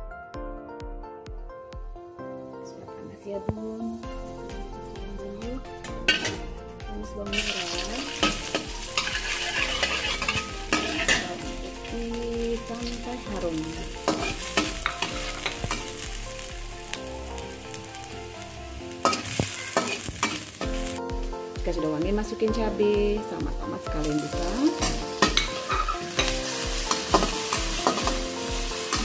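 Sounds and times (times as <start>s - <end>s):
shallots sizzling in oil: 4.1s - 6.5s, 7.2s - 29.0s
spatula scraping a pan: 7.4s - 11.6s, 14.0s - 16.1s, 19.0s - 20.9s, 24.8s - 29.0s.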